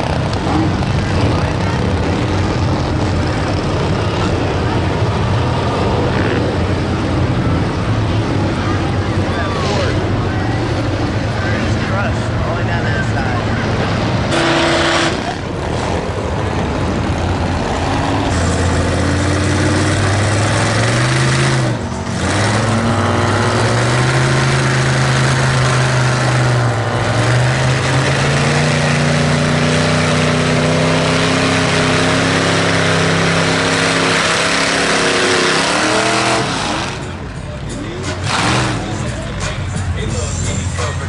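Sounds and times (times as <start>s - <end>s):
dense rushing noise: 0.0s - 41.0s
truck engine revving: 0.0s - 41.0s.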